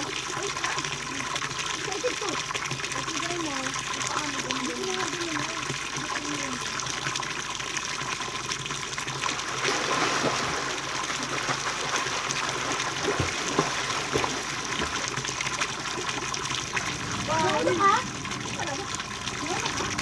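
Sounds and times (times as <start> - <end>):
running water splashing: 0.0 - 20.0
short splashes or knocks: 9.3 - 20.0.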